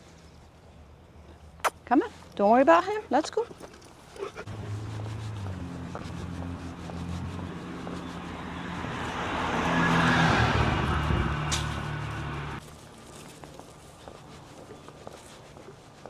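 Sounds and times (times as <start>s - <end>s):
car passing: 4.4s - 12.6s.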